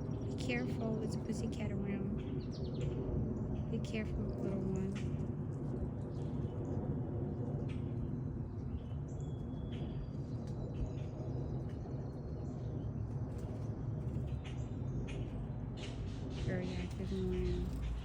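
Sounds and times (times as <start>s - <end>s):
low background rumble: 0.0s - 18.0s
small birds chirping: 7.5s - 18.0s.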